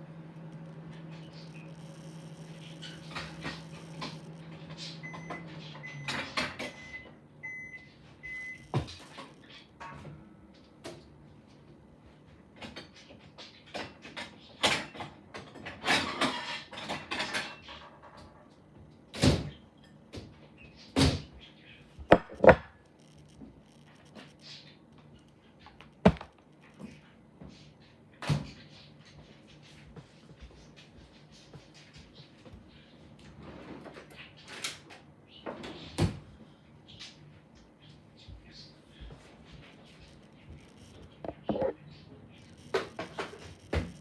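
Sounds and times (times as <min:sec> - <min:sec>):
sharp knocks and clicks: 0:22.1 - 0:22.7, 0:25.7 - 0:26.5.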